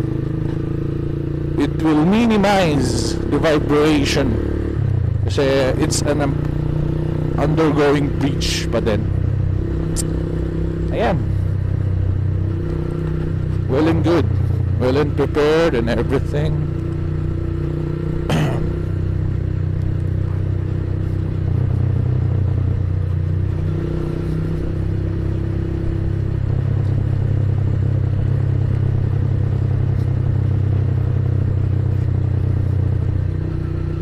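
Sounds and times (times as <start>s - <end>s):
motorcycle engine running: 0.0s - 34.0s
road and wind noise: 0.0s - 34.0s.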